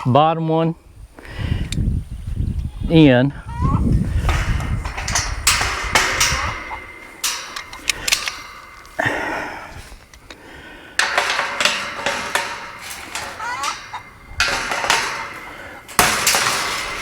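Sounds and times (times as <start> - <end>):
metal gate clanking and scraping: 3.5 - 17.0.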